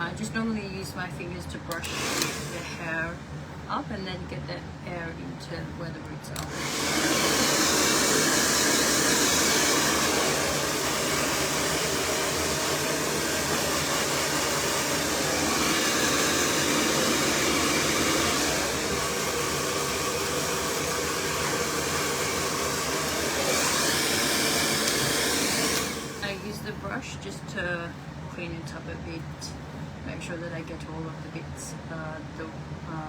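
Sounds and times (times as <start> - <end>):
hair dryer running: 0.0 - 3.2, 6.3 - 27.0.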